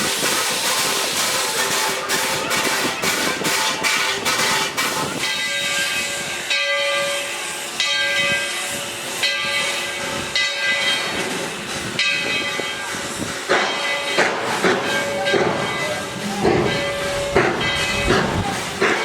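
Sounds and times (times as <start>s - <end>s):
steam hissing: 0.0s - 6.6s
steam locomotive exhaust chuffs: 0.0s - 6.6s, 7.2s - 19.0s
ringing steam pulse: 0.0s - 19.0s.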